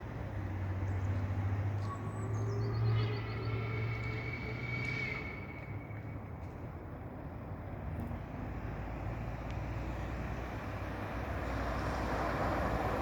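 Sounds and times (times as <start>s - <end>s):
high squeal: 2.0s - 6.4s
steam locomotive rumbling: 2.2s - 7.3s.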